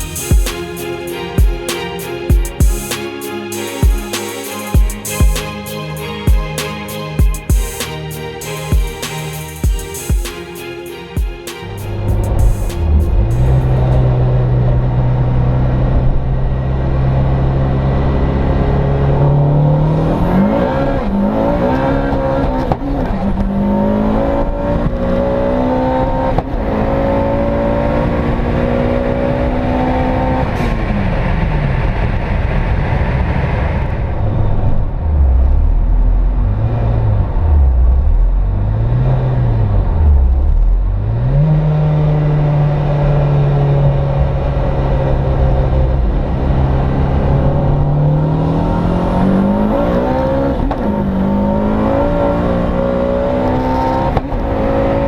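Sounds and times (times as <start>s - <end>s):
car engine accelerating hard: 11.6s - 55.0s.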